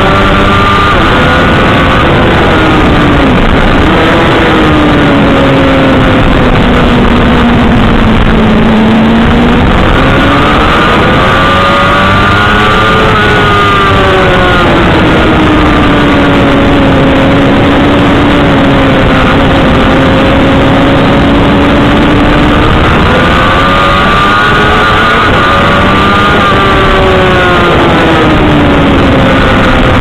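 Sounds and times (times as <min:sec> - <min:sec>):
motorcycle engine at speed: 0:00.0 - 0:30.0
wind noise on microphone: 0:00.0 - 0:30.0.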